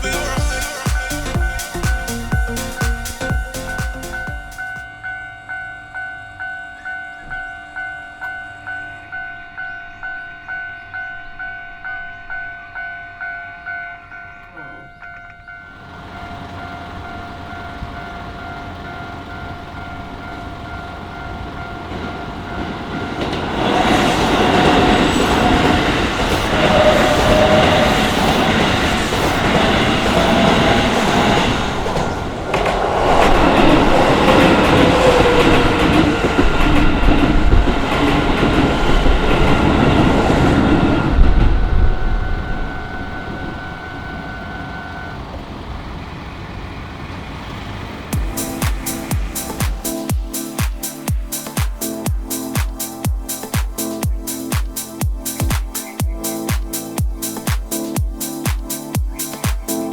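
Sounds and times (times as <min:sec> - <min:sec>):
level crossing warning bell: 0:00.0 - 0:32.6, 0:33.4 - 0:46.5
train wheels clattering on rails: 0:15.1 - 0:44.7.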